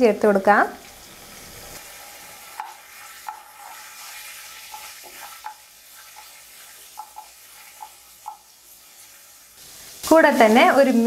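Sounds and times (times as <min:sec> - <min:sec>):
garlic and ginger sizzling in oil: 0:00.0 - 0:11.0
wooden spatula knocking on pan: 0:07.0 - 0:08.5.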